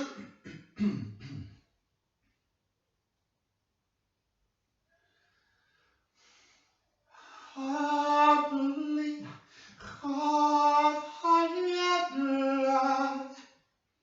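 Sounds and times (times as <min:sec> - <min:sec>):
person singing unaccompanied: 0:07.4 - 0:13.6.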